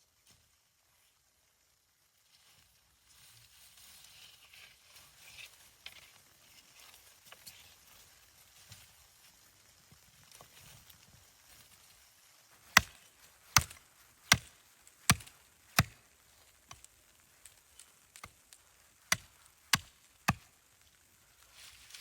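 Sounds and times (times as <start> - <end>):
axe chopping wood: 12.7 - 16.0, 19.1 - 20.5.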